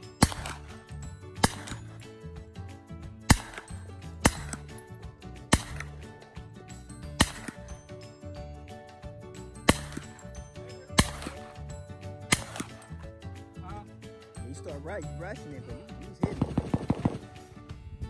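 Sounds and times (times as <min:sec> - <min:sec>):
gunshots: 0:00.2 - 0:02.0, 0:03.2 - 0:04.8, 0:05.4 - 0:06.1, 0:07.2 - 0:07.7, 0:09.6 - 0:10.2, 0:10.9 - 0:11.6, 0:12.3 - 0:12.9, 0:16.2 - 0:17.5.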